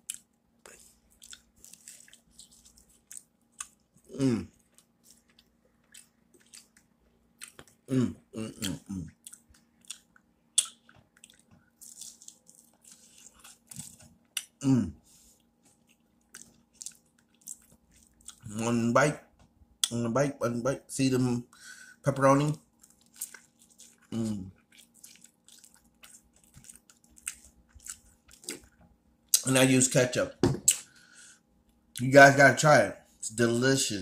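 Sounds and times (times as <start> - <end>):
person chewing food: 0.0 - 18.7, 22.3 - 29.4.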